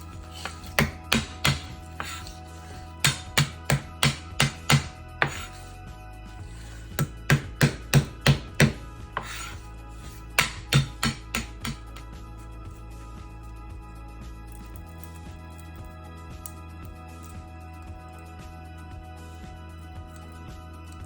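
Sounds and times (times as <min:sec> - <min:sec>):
quiet background music: 0:00.0 - 0:21.0
knife chopping on cutting board: 0:00.3 - 0:02.4, 0:03.0 - 0:05.6, 0:06.9 - 0:09.6, 0:10.3 - 0:12.0.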